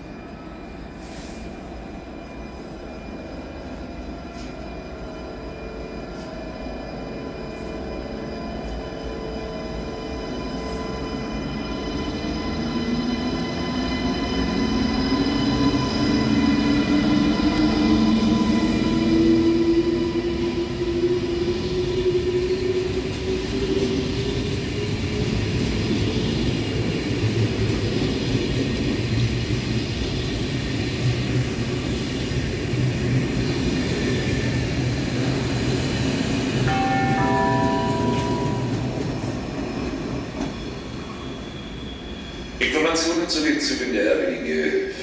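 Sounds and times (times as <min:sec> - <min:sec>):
wheels rumbling on rail: 0:07.6 - 0:42.4
tones at different pitches: 0:36.7 - 0:38.9.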